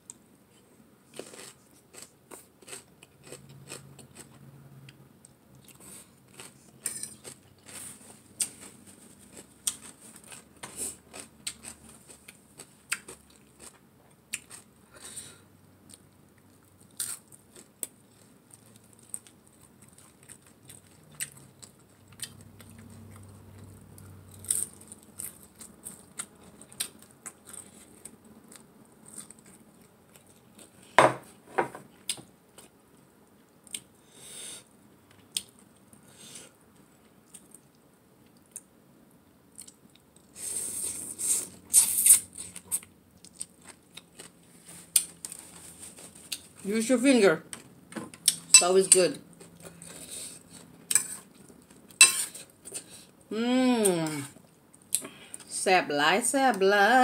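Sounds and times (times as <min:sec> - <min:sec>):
person chewing and crunching: 0:01.1 - 0:04.4, 0:05.2 - 0:14.8, 0:15.9 - 0:31.0, 0:37.2 - 0:38.7, 0:39.5 - 0:46.6.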